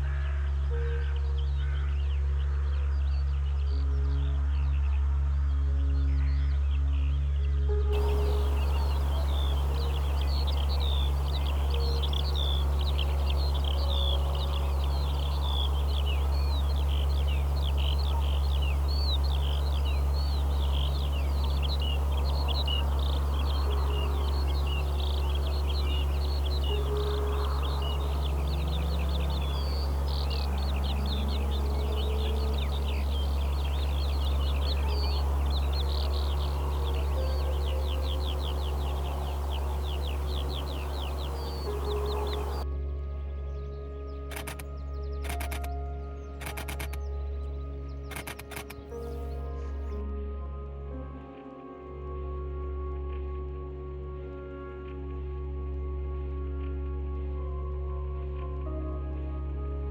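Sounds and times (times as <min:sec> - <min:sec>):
birds chirping in chorus: 0:08.0 - 0:42.7
steady low hum: 0:08.0 - 0:42.7.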